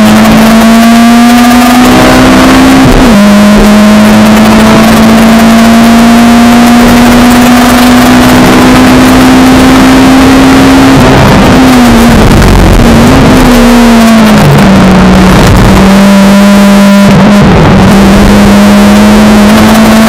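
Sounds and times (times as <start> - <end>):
car engine revving in cabin: 0.0 - 20.0.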